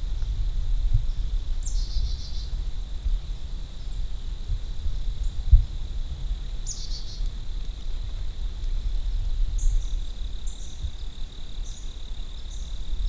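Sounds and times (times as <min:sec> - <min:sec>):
wind on microphone: 0:00.0 - 0:13.0
songbird call: 0:01.1 - 0:02.6, 0:06.6 - 0:07.4, 0:09.5 - 0:13.0.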